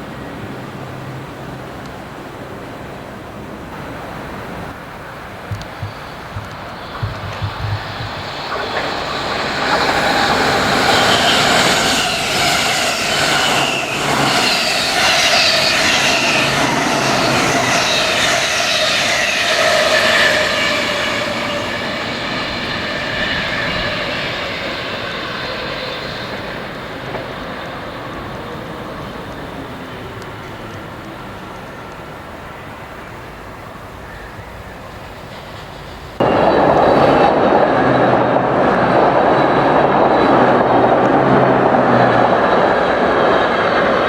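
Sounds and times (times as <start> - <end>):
train passing: 0.0 - 44.0
high whining tones: 5.4 - 30.1, 36.2 - 44.0.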